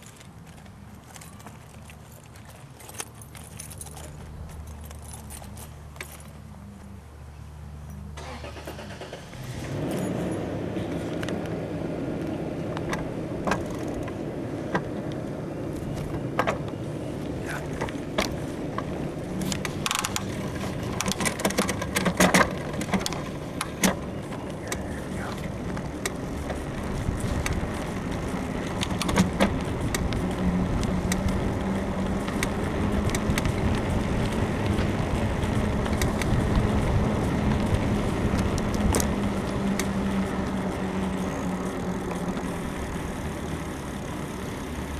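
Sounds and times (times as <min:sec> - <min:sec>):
wind and tyre noise: 0:00.0 - 0:44.9
bicycle frame clicking and creaking: 0:12.9 - 0:44.9.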